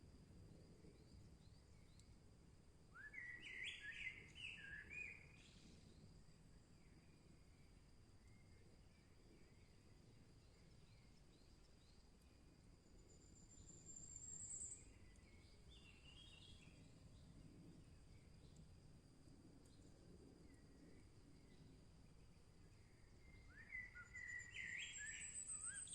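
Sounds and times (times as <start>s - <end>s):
faint high insect tone: 0.0s - 25.9s
distant bird chirps: 23.2s - 25.9s.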